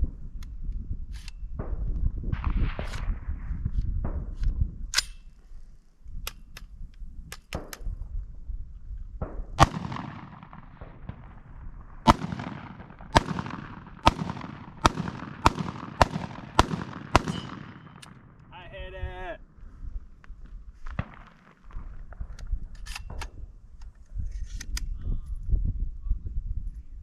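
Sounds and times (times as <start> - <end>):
gunshots with echo: 9.6 - 18.5.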